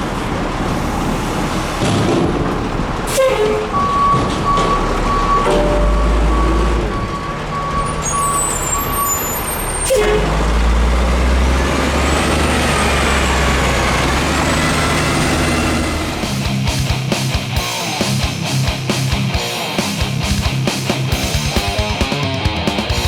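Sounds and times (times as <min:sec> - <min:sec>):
garbage truck engine running: 0:00.0 - 0:23.0
reversing beeper: 0:03.1 - 0:16.5.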